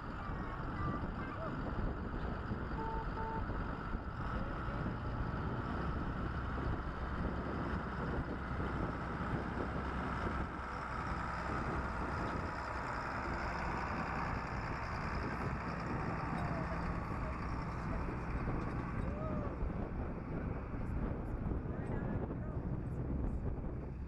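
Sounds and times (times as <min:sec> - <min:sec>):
farm machinery engines running: 0:00.0 - 0:24.0
wind noise on microphone: 0:00.0 - 0:24.0.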